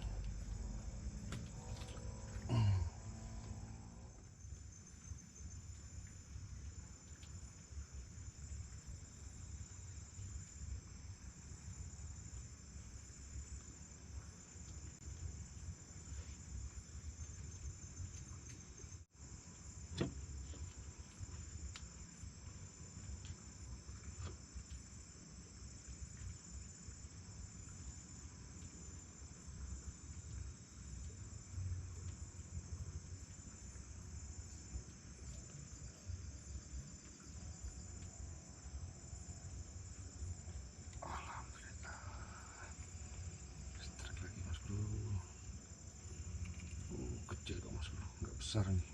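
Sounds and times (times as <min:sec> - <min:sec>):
low rumble: 0:00.0 - 0:04.3
insects trilling: 0:00.0 - 0:48.9.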